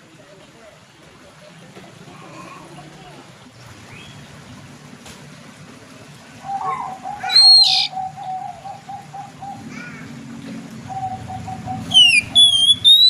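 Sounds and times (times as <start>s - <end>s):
bird singing: 6.5s - 9.7s, 10.9s - 13.0s.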